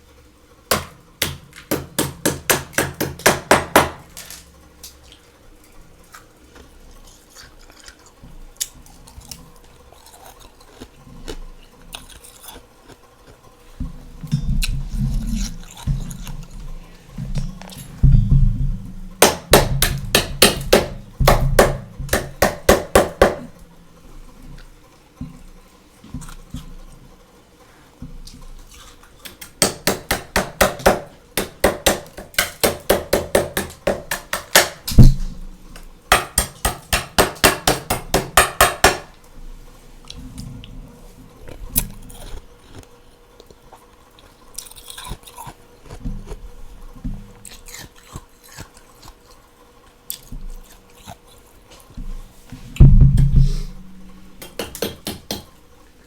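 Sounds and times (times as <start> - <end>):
freezer frost crunching: 4.0 - 18.0, 41.2 - 52.3.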